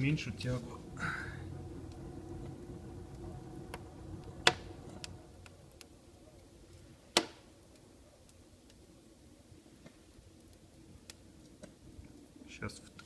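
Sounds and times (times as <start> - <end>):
low rumble: 0.0 - 8.4
wood fire crackling: 0.0 - 13.0
loud sharp pops: 7.1 - 7.5.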